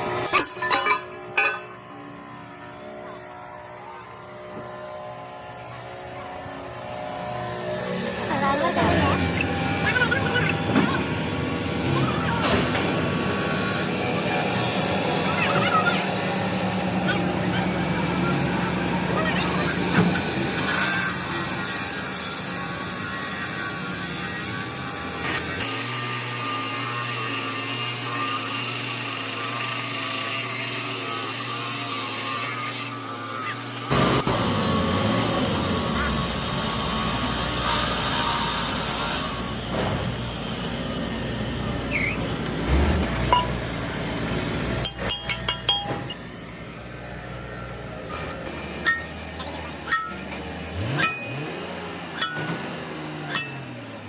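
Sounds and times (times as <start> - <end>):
power tool on metal: 0.0 - 54.0
metallic clinks and taps: 44.8 - 46.2.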